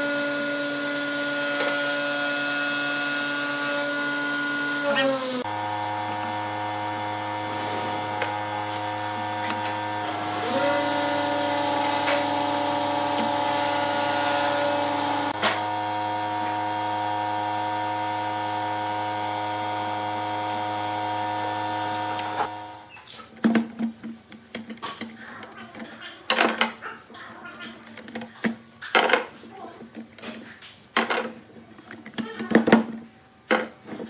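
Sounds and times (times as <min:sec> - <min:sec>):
lathe motor hum: 0:00.0 - 0:22.9
tool cutting spinning wood: 0:00.0 - 0:22.9.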